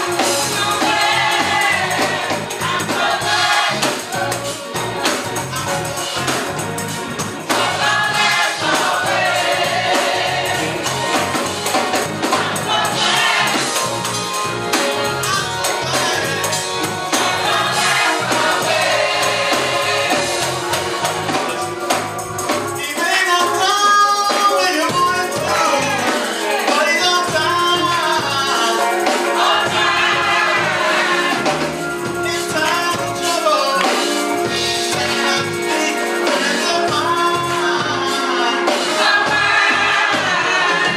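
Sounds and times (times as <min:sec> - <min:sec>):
choir singing: 0:00.0 - 0:05.2, 0:07.4 - 0:21.7, 0:25.4 - 0:27.0, 0:28.1 - 0:32.1, 0:34.5 - 0:40.9
band accompaniment: 0:00.0 - 0:40.9.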